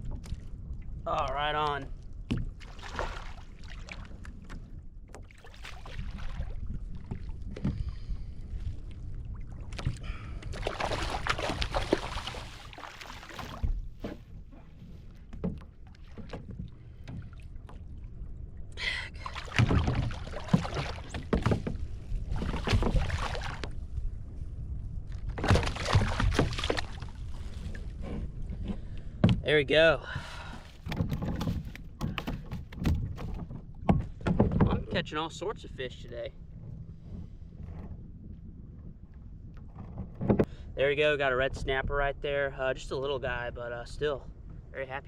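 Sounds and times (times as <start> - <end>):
water splashing and sloshing: 0.0 - 40.6
low steady rumble: 13.5 - 25.4.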